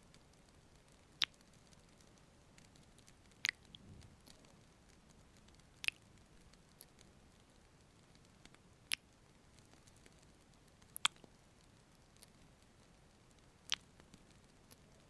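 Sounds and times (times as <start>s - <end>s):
faint small ticks: 0.0s - 15.0s
lip smacks kissing: 11.0s - 11.2s.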